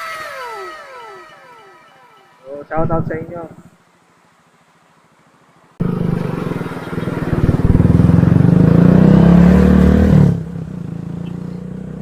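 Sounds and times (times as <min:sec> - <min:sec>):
motorcycle engine revving: 0:05.8 - 0:12.0.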